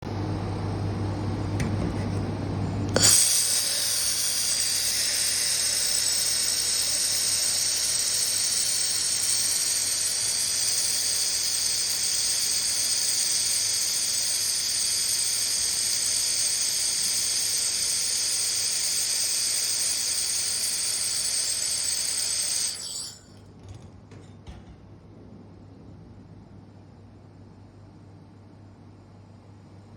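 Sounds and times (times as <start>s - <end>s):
low machine hum: 0.1s - 29.9s
laser welder hissing: 2.9s - 23.3s.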